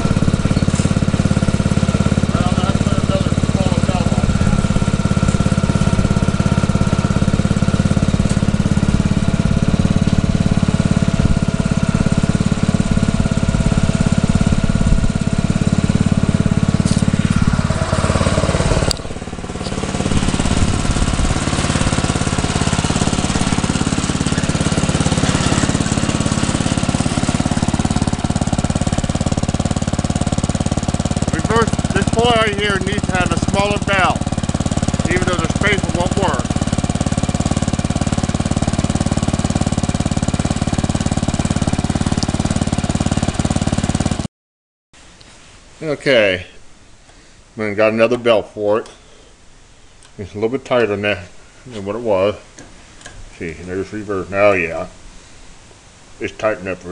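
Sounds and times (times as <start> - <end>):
small engine running: 0.0 - 44.3.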